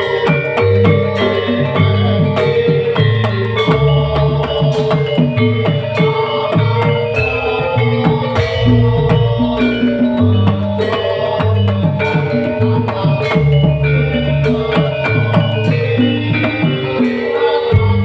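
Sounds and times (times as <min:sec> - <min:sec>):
drum beat: 0:00.0 - 0:18.0
sustained melody notes: 0:00.0 - 0:18.0
bass line: 0:00.6 - 0:17.1, 0:17.7 - 0:18.0.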